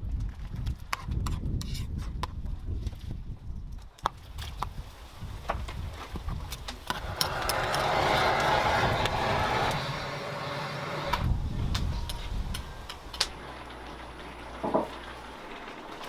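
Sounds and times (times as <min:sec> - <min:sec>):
wood fire crackling: 0:04.0 - 0:16.0
stew sizzling: 0:04.3 - 0:16.0.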